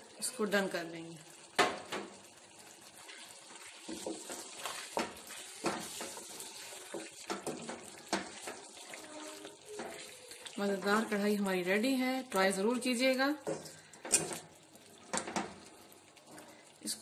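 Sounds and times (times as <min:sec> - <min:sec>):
food sizzling in a wok: 0:00.0 - 0:17.0
spoon scraping a pan: 0:03.2 - 0:10.2.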